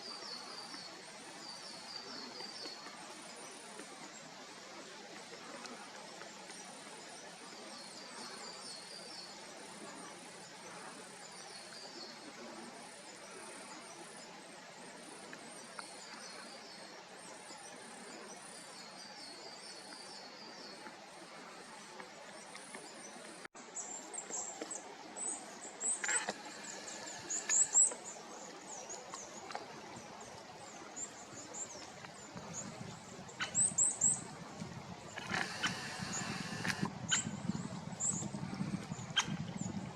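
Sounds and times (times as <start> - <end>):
small birds calling: 25.2 - 29.6, 35.1 - 39.8.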